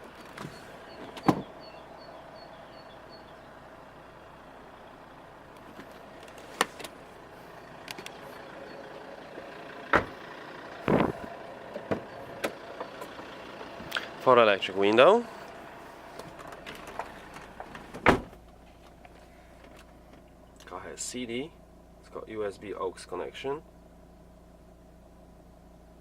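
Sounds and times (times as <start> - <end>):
car door and interior clicks: 0.1 - 1.6
faint high beeps: 8.6 - 9.0
steady hum: 10.8 - 12.3.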